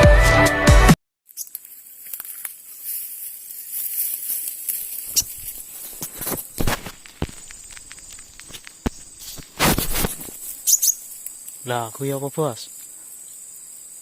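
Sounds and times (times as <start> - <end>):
high-pitched insect buzz: 1.3 - 14.0
clicks taps and rustles: 5.0 - 10.6.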